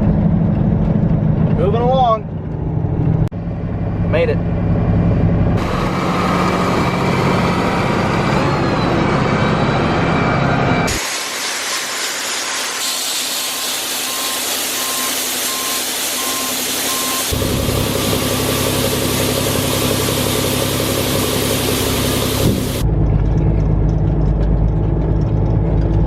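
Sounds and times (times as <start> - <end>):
heavy diesel engine running: 0.0 - 26.0
rushing machinery noise: 3.9 - 26.0
reversing alarm beeping: 6.9 - 10.9, 13.2 - 17.4.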